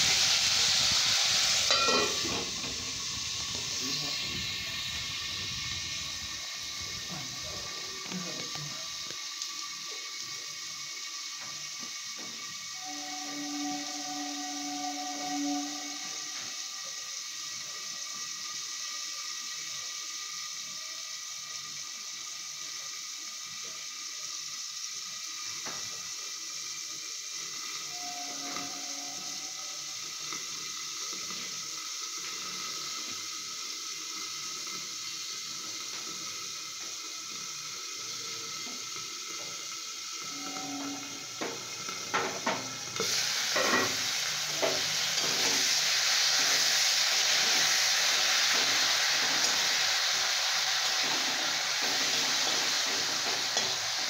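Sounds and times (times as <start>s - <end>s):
beans sizzling in a wok: 0.0s - 54.0s
metal lid clinks: 1.7s - 2.4s.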